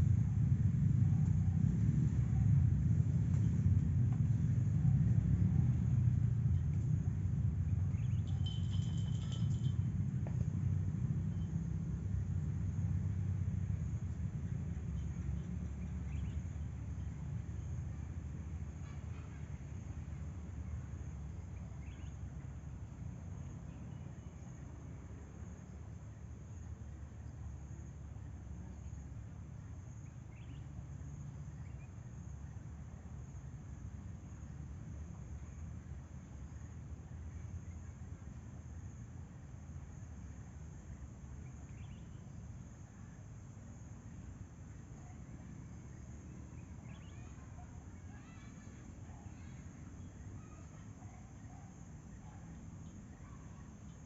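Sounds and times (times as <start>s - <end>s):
low rumble: 0.0s - 12.8s
low steady rumble: 0.0s - 54.0s
insects trilling: 41.4s - 54.0s
faint bird chirps: 45.9s - 54.0s.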